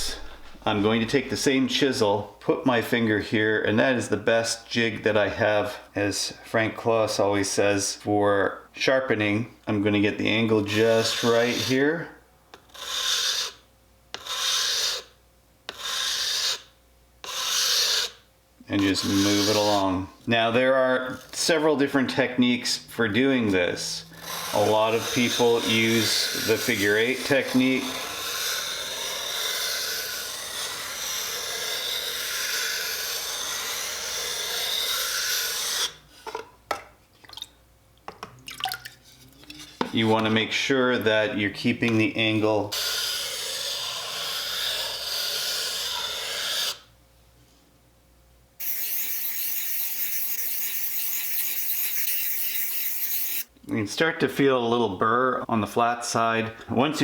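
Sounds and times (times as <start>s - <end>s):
chisel scraping on whetstone: 10.7s - 11.8s, 12.6s - 18.2s, 18.8s - 19.8s, 24.2s - 36.4s, 42.7s - 46.8s, 48.6s - 53.5s.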